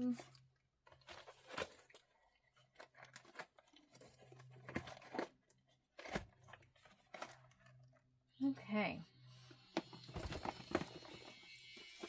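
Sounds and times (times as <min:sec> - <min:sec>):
plastic packaging rustling: 0:00.0 - 0:08.0, 0:09.8 - 0:11.4.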